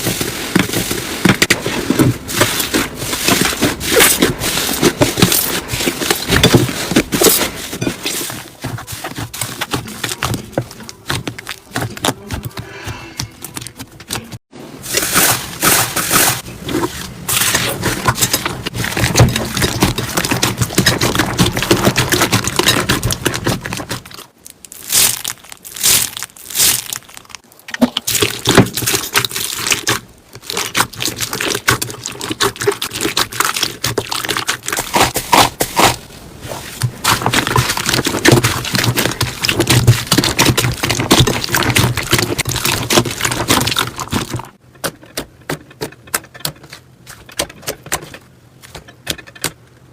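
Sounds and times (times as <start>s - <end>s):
slime crackling and popping: 18.7s - 36.0s.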